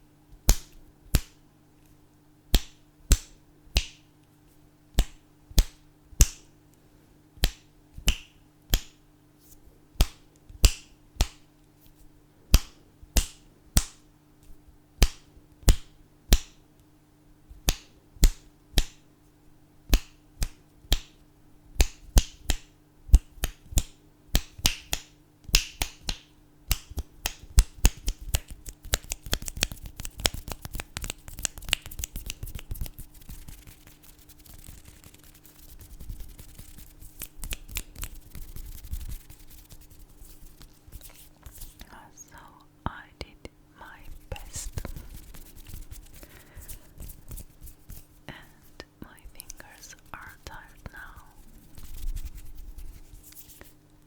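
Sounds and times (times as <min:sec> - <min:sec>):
fingers snapping: 0:00.4 - 0:01.4, 0:02.5 - 0:04.0, 0:05.0 - 0:06.5, 0:07.4 - 0:09.0, 0:10.0 - 0:11.4, 0:12.5 - 0:14.0, 0:15.0 - 0:16.6, 0:17.6 - 0:19.0, 0:19.9 - 0:21.2, 0:21.8 - 0:42.0, 0:49.4 - 0:49.8.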